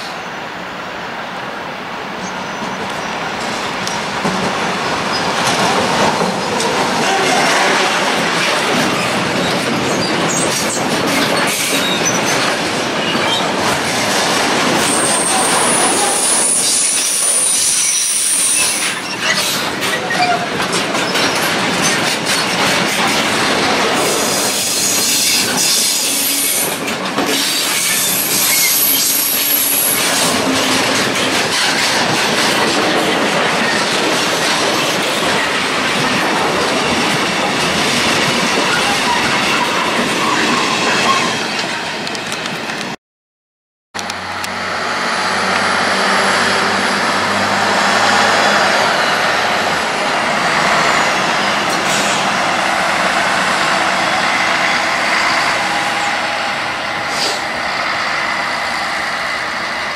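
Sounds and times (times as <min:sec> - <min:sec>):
freight train wheels rumbling: 0:00.0 - 0:43.0, 0:44.0 - 0:59.9
wheel squeal: 0:14.8 - 0:20.4, 0:27.4 - 0:30.1.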